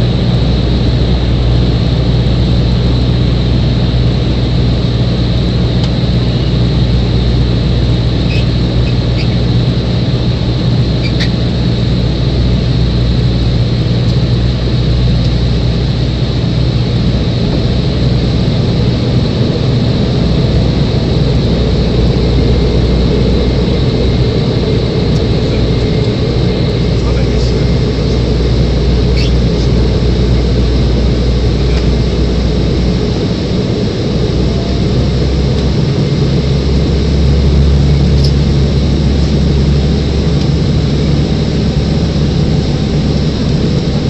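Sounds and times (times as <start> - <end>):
airliner engine drone: 0.0 - 44.0
faint high whine: 0.0 - 44.0.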